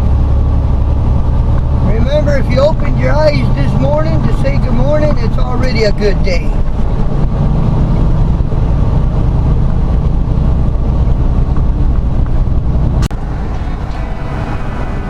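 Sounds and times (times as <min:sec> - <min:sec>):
diesel truck engine droning: 0:00.0 - 0:15.0
road noise: 0:00.0 - 0:15.0.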